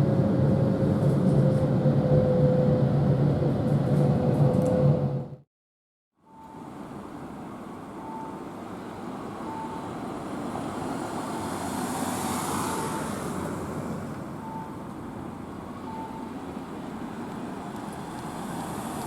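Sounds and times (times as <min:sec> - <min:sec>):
train rumbling and hissing: 0:00.0 - 0:05.4, 0:06.3 - 0:19.0
short electronic beep: 0:15.9 - 0:16.3.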